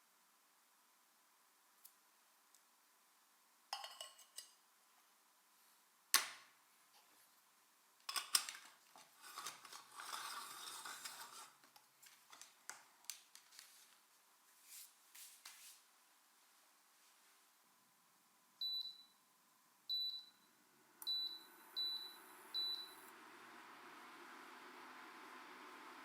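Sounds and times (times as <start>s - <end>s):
metal kitchenware clattering: 3.8s - 4.5s.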